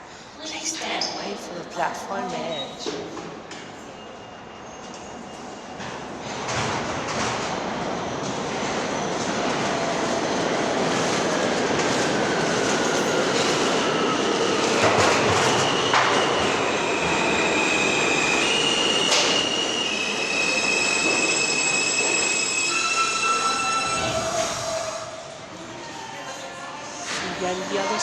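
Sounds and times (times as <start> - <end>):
steel wheels squealing on rails: 2.3 - 6.4, 12.3 - 26.2.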